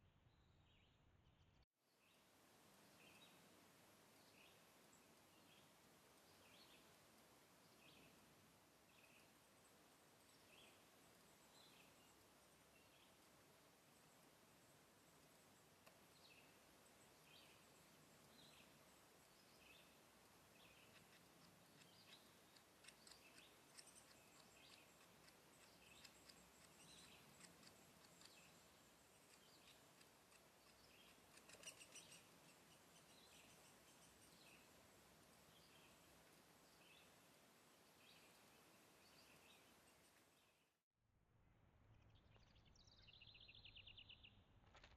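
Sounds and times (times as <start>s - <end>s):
faint outdoor hiss: 0.0s - 40.8s
faint bird chirps: 13.9s - 40.8s.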